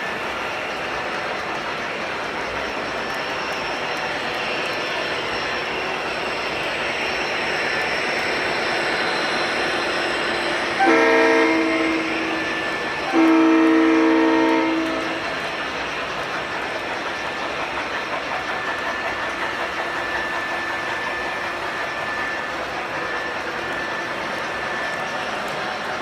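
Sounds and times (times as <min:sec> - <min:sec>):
model train wheels rolling on track: 0:00.0 - 0:26.0
train horn blasts: 0:10.7 - 0:15.2.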